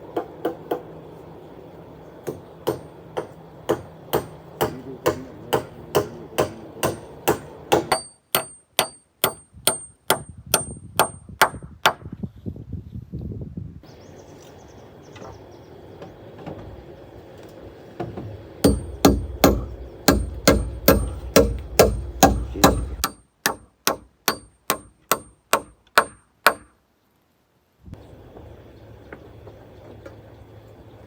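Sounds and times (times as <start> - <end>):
hammer driving nails into timber: 2.2 - 12.1, 18.6 - 26.7.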